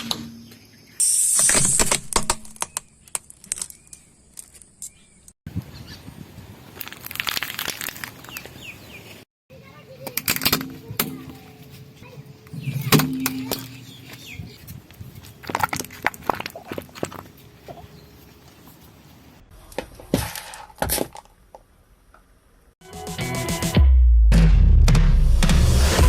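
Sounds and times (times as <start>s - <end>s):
objects crunching under car tyre: 6.7s - 8.7s, 12.6s - 18.9s.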